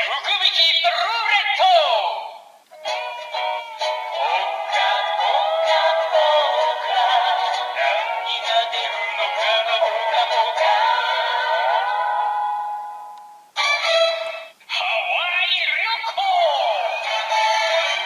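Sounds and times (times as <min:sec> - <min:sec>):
toy speaker synthetic voice singing: 0:02.8 - 0:12.4, 0:13.6 - 0:18.0.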